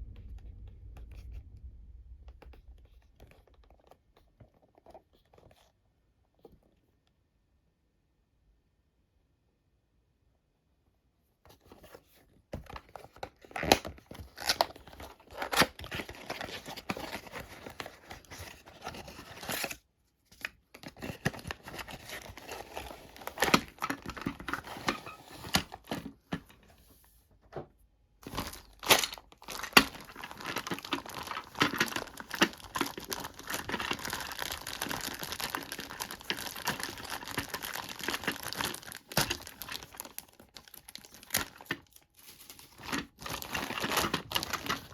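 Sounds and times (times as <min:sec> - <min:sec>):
plastic packaging crinkling: 0:12.7 - 0:19.8, 0:20.4 - 0:26.6, 0:28.2 - 0:44.9.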